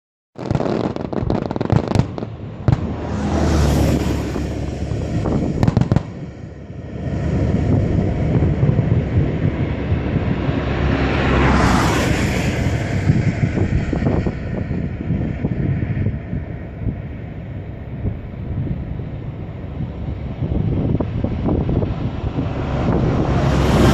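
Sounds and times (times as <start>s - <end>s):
booming rumble: 0.4s - 23.9s
firework shells bursting: 5.6s - 6.3s.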